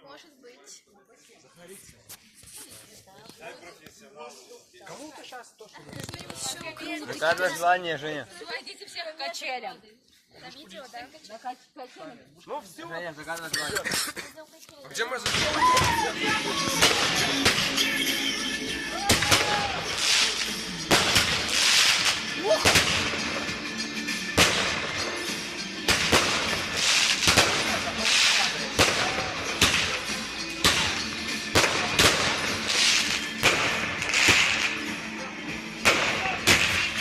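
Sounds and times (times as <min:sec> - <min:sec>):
fireworks bangs: 0:15.2 - 0:18.4, 0:19.0 - 0:35.0, 0:35.8 - 0:37.0
fireworks crackling hiss: 0:15.2 - 0:37.0.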